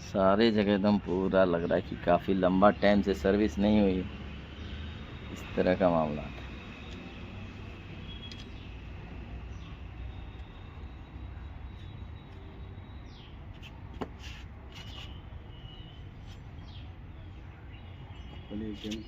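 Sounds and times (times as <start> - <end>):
bird chirps: 9.4 - 13.7, 14.3 - 19.0.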